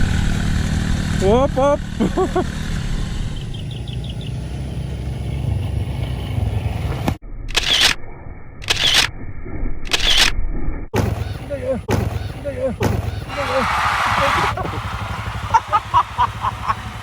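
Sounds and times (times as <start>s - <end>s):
motorcycle engine idling: 0.1s - 7.0s, 14.5s - 17.0s
loud engine bursts: 13.0s - 17.0s.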